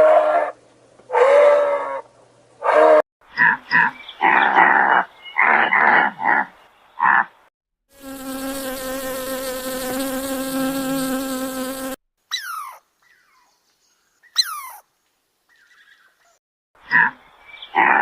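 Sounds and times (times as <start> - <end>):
insect buzzing: 7.9 - 12.0.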